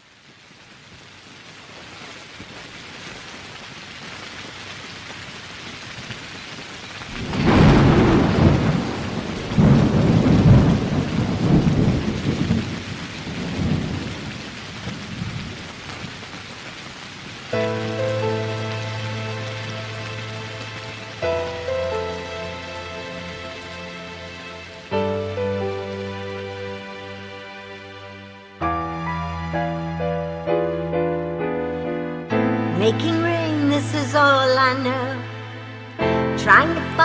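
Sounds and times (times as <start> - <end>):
steady rain: 0.0 - 37.0
thunder rumbling: 7.1 - 16.4, 17.2 - 27.6
music: 17.5 - 37.0.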